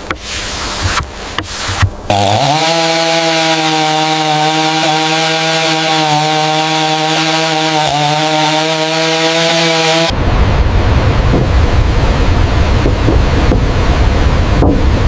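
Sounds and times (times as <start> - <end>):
chainsaw cutting wood: 0.0 - 10.1.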